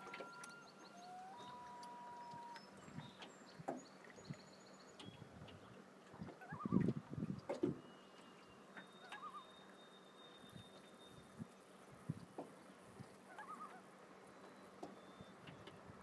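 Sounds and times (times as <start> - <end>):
distant loon calls: 0.0 - 2.7, 6.3 - 7.0, 8.8 - 9.6, 13.2 - 15.5.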